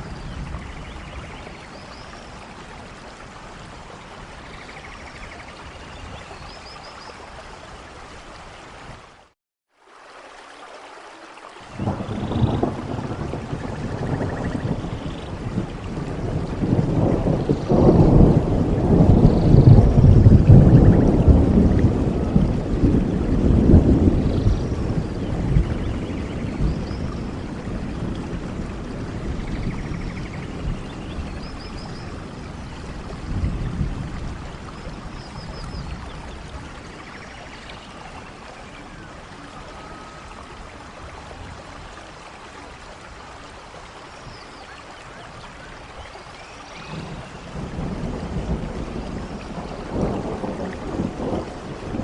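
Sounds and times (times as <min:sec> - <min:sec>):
steady rain: 0:00.0 - 0:52.0
rolling thunder: 0:11.7 - 0:41.6, 0:46.8 - 0:52.0.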